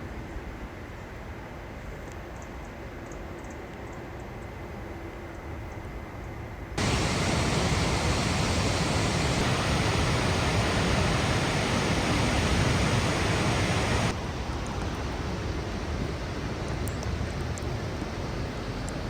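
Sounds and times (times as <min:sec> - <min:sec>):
rushing water: 0:06.8 - 0:14.2.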